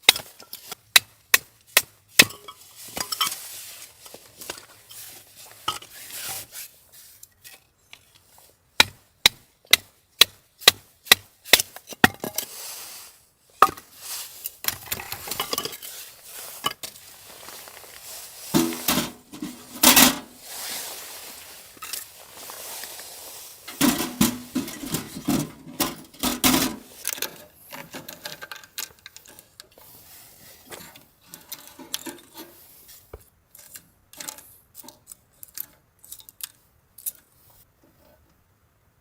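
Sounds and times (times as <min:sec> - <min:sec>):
scraping and rustling: 0:02.2 - 0:08.6, 0:11.7 - 0:36.2.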